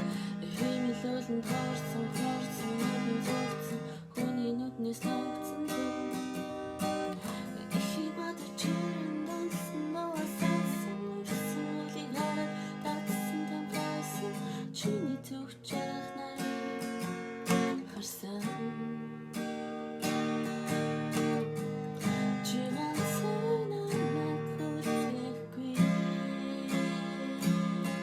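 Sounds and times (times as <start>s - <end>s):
acoustic guitar strumming chords: 0.0s - 28.0s.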